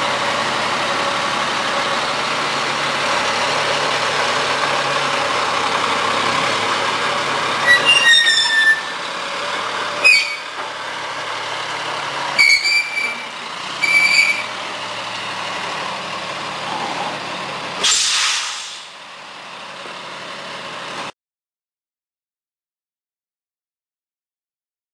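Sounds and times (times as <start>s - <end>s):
diesel truck engine running: 0.0s - 21.1s
high-pitched brake squeals: 7.6s - 9.0s, 10.0s - 10.6s, 12.4s - 14.6s
air-brake hiss: 17.8s - 19.0s.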